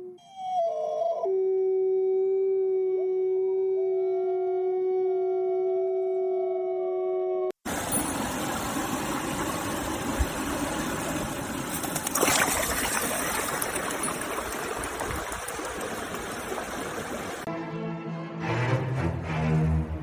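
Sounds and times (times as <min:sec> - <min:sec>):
running water rushing: 0:07.6 - 0:17.5.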